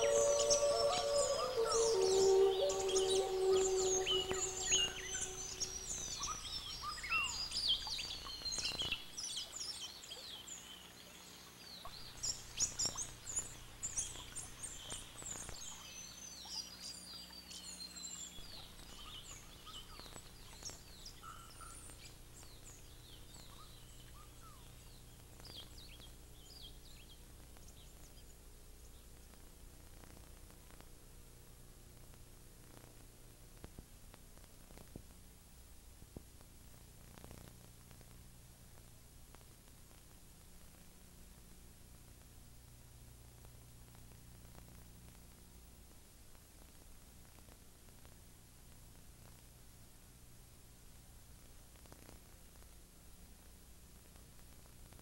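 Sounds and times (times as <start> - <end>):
small birds chirping and whistling: 0.0 - 10.9, 11.6 - 27.2.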